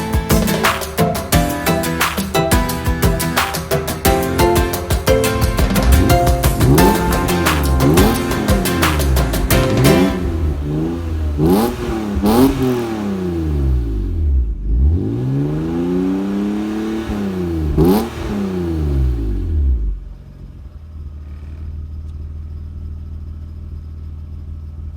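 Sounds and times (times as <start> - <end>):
car engine revving and idling: 5.3 - 24.9.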